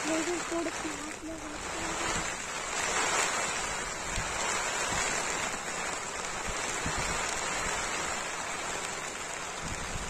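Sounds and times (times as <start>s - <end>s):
rain falling on grass: 0.0s - 10.0s.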